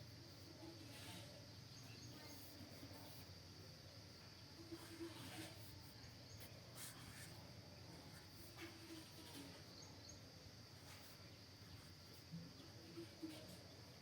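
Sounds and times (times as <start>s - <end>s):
soft short scratches: 0.8s - 3.3s, 4.6s - 12.3s.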